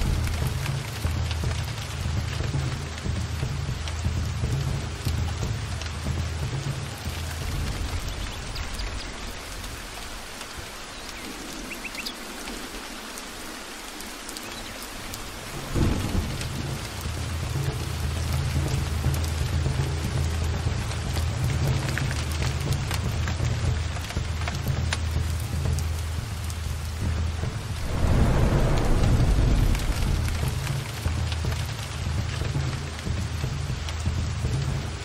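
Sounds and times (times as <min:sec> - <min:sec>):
thunder crack: 0:00.0 - 0:01.2, 0:15.3 - 0:17.2, 0:27.5 - 0:32.1
rolling thunder: 0:00.0 - 0:01.8, 0:07.2 - 0:10.7, 0:15.0 - 0:18.5, 0:26.9 - 0:32.6
heavy rain: 0:00.0 - 0:35.0.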